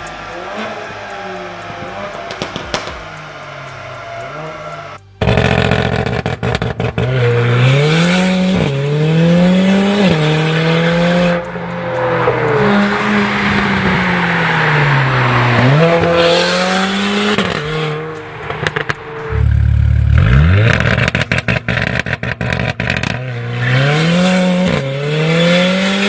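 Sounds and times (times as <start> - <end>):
exhaust crackles and pops: 0.0 - 4.3, 4.9 - 8.8, 17.3 - 24.9
car engine accelerating: 0.0 - 26.0.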